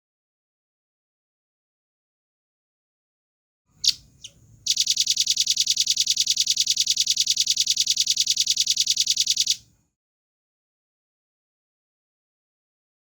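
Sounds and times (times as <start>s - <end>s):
bird singing fast high trill: 3.8s - 9.6s.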